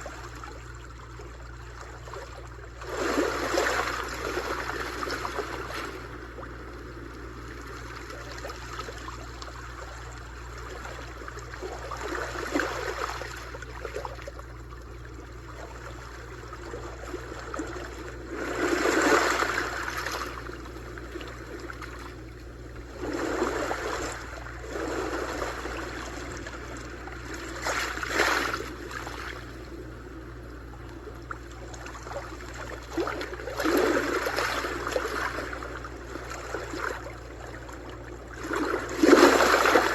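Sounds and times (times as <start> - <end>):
surf washing ashore: 2.8 - 9.2, 17.1 - 22.1, 22.8 - 30.0, 31.5 - 39.9.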